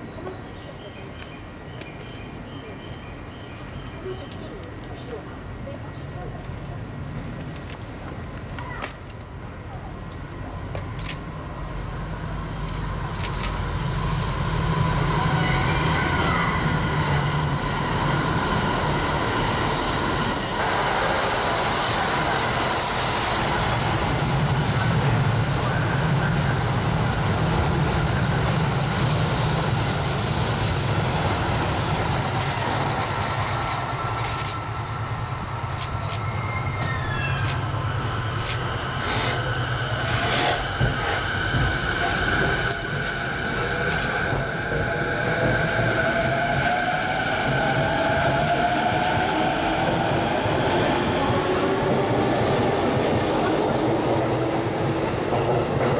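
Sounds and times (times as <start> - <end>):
train rumbling past: 0.0 - 55.9
thin high squealing tones: 36.0 - 38.0.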